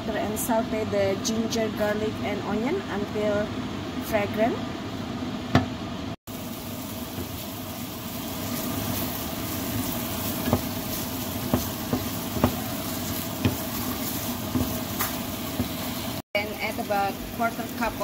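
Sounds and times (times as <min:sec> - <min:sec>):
onions sizzling in butter: 0:06.3 - 0:18.0
wooden spatula knocking pan: 0:10.3 - 0:15.9.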